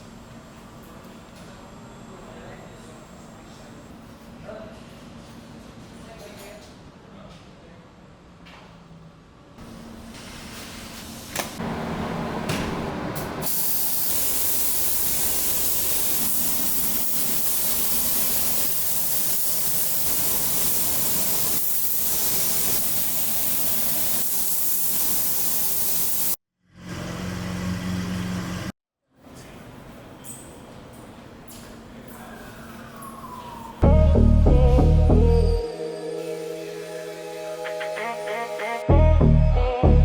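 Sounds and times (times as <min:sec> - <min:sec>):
rushing air hiss: 0:13.4 - 0:26.4.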